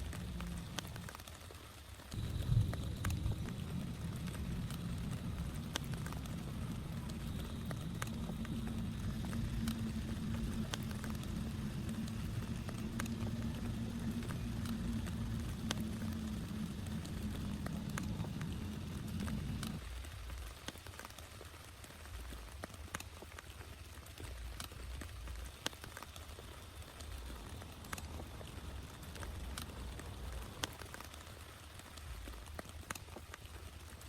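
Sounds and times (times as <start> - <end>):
low rumble: 0.0 - 1.2, 2.1 - 20.0, 27.0 - 31.0
raindrops ticking: 0.0 - 34.0.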